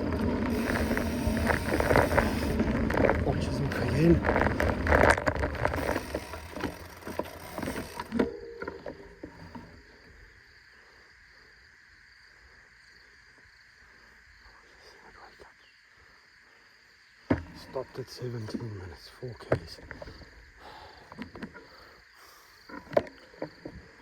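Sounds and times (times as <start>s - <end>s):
bike rattling clicks: 0.0s - 9.8s
bike tyre and wind noise: 0.0s - 9.9s.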